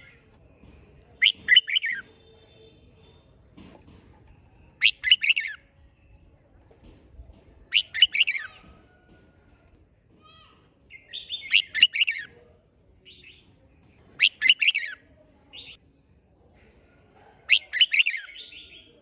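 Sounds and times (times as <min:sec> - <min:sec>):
bird warbling song: 0:01.1 - 0:02.1, 0:04.7 - 0:06.3, 0:07.7 - 0:08.6.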